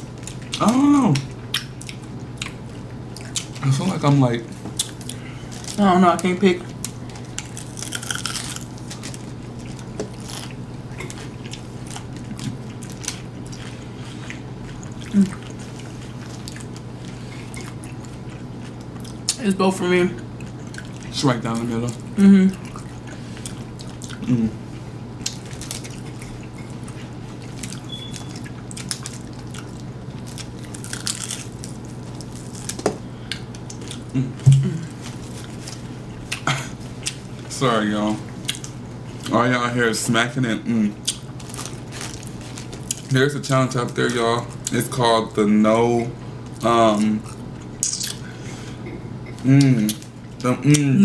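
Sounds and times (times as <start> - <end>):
chewing and crunching tacos: 0.0 - 19.4, 20.2 - 45.4, 46.2 - 51.0
steady low hum: 0.0 - 51.0
lip-smacking and chewing: 0.2 - 3.6, 25.2 - 36.4, 41.0 - 43.1.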